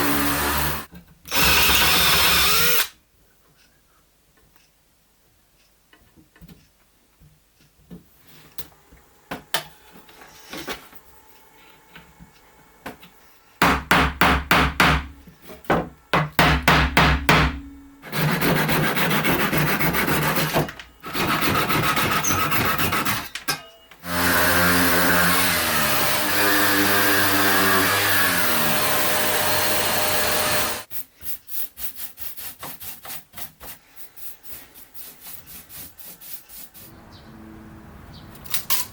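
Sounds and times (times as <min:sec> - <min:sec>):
power tool running: 0:00.0 - 0:02.9, 0:24.0 - 0:30.9.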